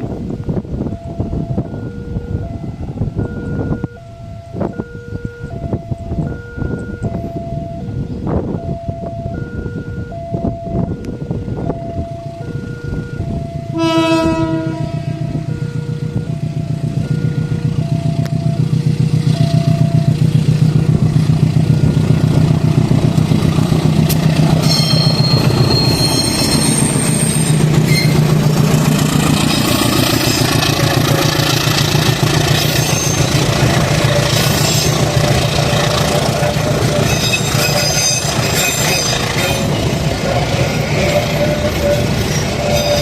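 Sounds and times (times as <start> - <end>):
locomotive engine hum: 0.0 - 43.0
train horn blast: 13.7 - 16.3, 24.1 - 31.9, 32.5 - 43.0
high wheel squeal: 24.1 - 43.0.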